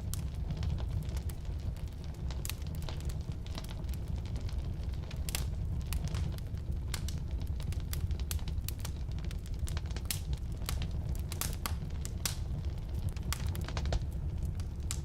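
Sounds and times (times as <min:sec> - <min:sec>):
firewood crackling and popping: 0:00.0 - 0:15.0
low rumble of flames: 0:00.0 - 0:15.0.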